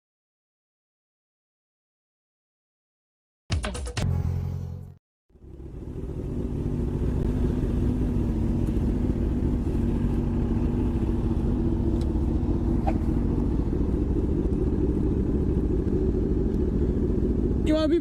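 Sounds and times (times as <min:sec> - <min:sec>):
motorcycle engine running: 0:04.1 - 0:18.0.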